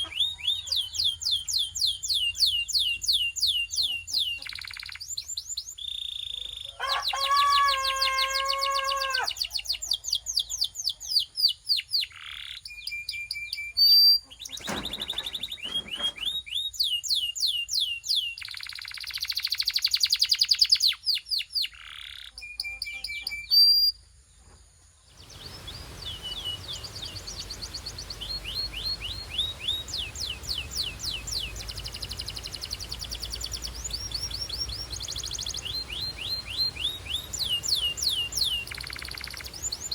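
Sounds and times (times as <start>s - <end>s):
canary singing trills: 0.0s - 24.0s, 25.1s - 39.9s
steady background hiss: 24.0s - 39.9s.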